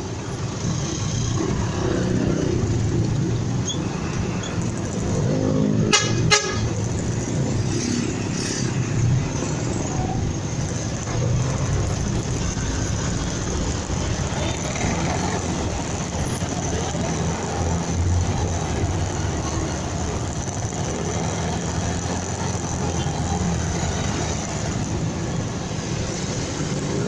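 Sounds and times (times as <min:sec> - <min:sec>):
road and wind noise: 0:00.0 - 0:27.0
horn toots: 0:05.8 - 0:06.7.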